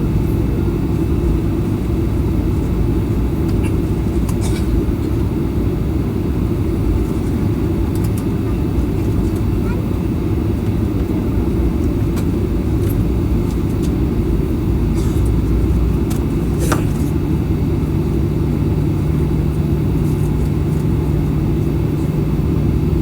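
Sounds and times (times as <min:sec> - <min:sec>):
airplane cabin rumble: 0:00.0 - 0:23.0
steady low hum: 0:00.0 - 0:23.0.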